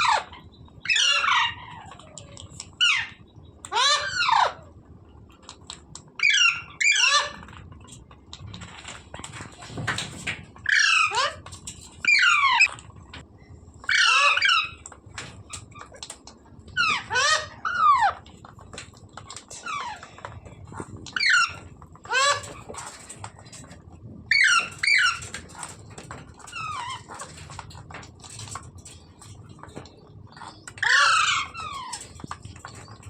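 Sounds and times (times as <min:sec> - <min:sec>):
parrot screeching: 0:00.0 - 0:02.2, 0:02.8 - 0:04.6, 0:06.2 - 0:07.5, 0:10.6 - 0:11.4, 0:12.0 - 0:12.7, 0:13.9 - 0:14.8, 0:16.8 - 0:18.2, 0:21.2 - 0:22.9, 0:24.3 - 0:25.4, 0:30.8 - 0:32.2.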